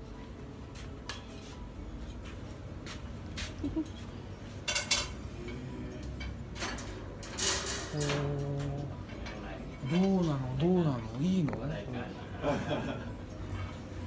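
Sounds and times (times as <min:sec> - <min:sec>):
utensils and dishes clinking: 0:03.7 - 0:14.0.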